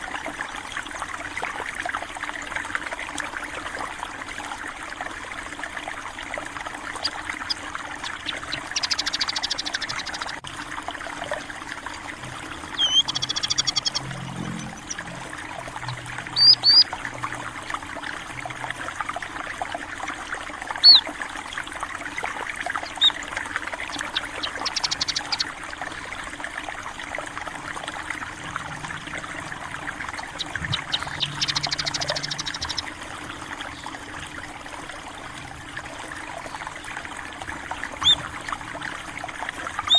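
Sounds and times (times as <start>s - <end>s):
stream water trickling: 0.0s - 39.9s
small birds chirping and trilling: 7.0s - 10.4s, 12.6s - 15.2s, 16.2s - 16.9s, 20.8s - 21.1s, 22.7s - 23.2s, 23.8s - 25.6s, 28.7s - 33.0s, 38.0s - 38.5s.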